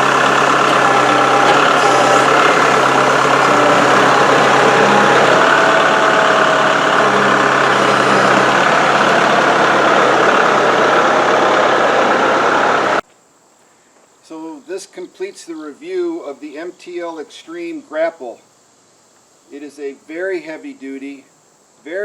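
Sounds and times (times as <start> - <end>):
hydraulic grapple working: 0.0 - 13.0
tractor engine running: 0.0 - 13.0.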